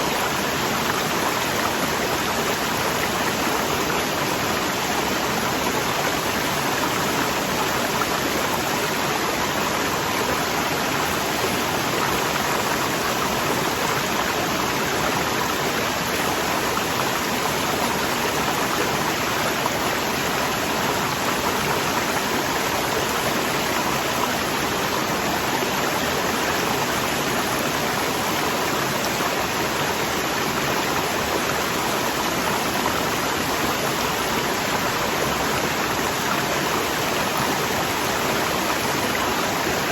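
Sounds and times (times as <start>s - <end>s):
waterfall rushing water: 0.0s - 39.9s.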